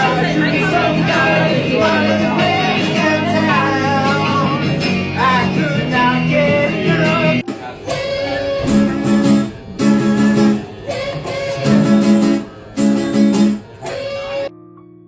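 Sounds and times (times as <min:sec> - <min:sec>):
strummed guitar chords: 0:00.0 - 0:14.6.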